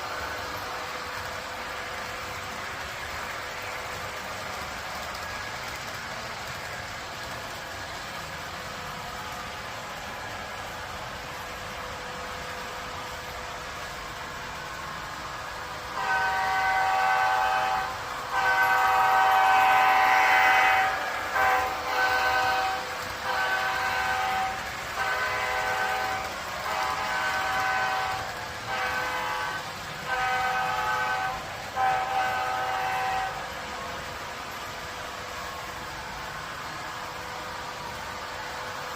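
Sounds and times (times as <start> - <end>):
train horn blasts: 15.6 - 34.1.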